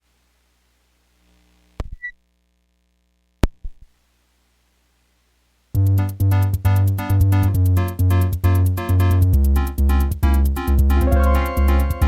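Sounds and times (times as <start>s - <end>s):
electronic bass and chords with rhythm: 6.1s - 12.0s.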